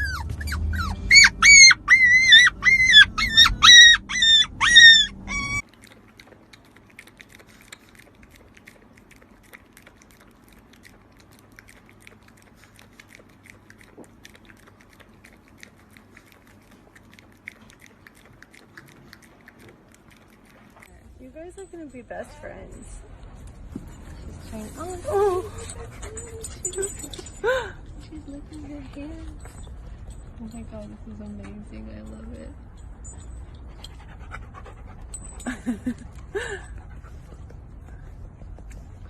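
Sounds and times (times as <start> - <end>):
animal yelping: 0.0 - 5.6.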